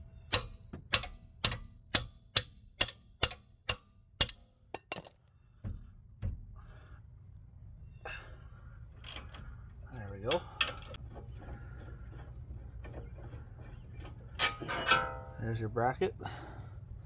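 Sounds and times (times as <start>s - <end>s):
hand tool clicking metallically: 0.3s - 5.1s.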